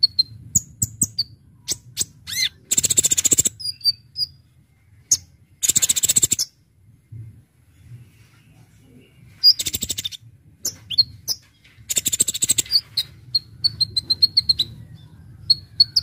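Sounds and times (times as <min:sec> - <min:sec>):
small bird singing: 0:00.0 - 0:06.7, 0:07.7 - 0:16.0
bird rattling trills: 0:05.6 - 0:06.5, 0:10.9 - 0:14.6.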